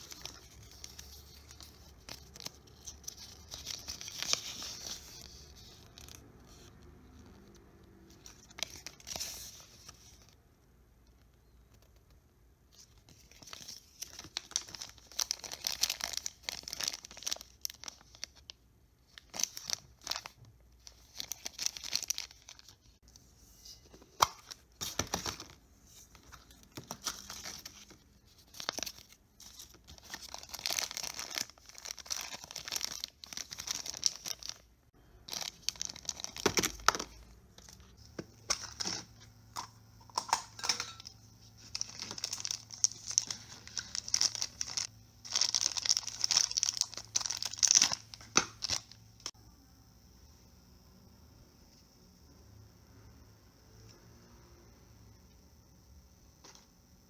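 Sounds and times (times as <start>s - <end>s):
plastic wrapping crinkling and tearing: 0.0s - 6.7s, 12.8s - 23.0s, 24.1s - 34.7s, 35.3s - 39.1s, 40.1s - 49.3s.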